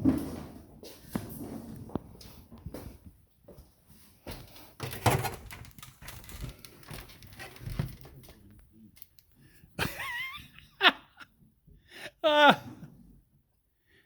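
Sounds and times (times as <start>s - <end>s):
cable rustling and scraping in wall: 0.0s - 9.7s.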